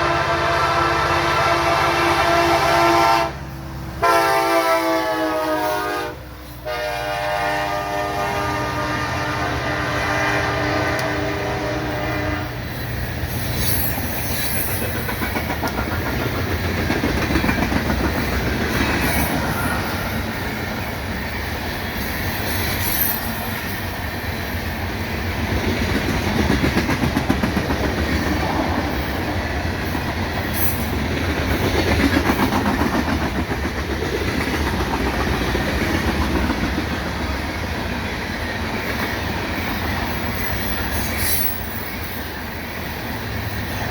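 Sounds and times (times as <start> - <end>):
locomotive horn chord: 0.0 - 3.4, 4.0 - 12.6
train cars rumbling and clacking: 0.0 - 43.9
wheel squeals: 12.8 - 15.2, 40.1 - 42.3.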